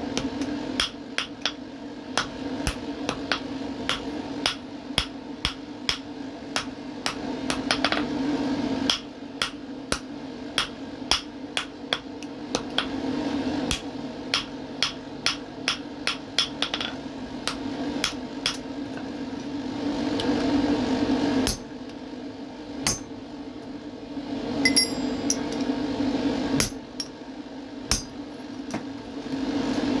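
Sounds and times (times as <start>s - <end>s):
hammer striking iron on anvil: 21.4s - 21.7s, 22.8s - 23.1s, 24.6s - 25.6s, 27.9s - 28.2s
low hum: 24.5s - 26.3s.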